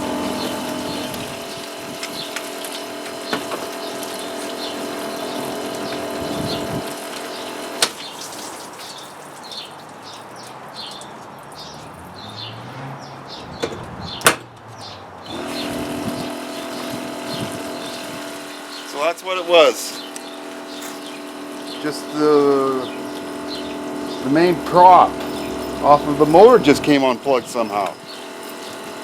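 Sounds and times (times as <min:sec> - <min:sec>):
dishwasher pump motor humming: 0:00.0 - 0:09.0, 0:15.3 - 0:29.0
birds chirping: 0:00.0 - 0:29.0.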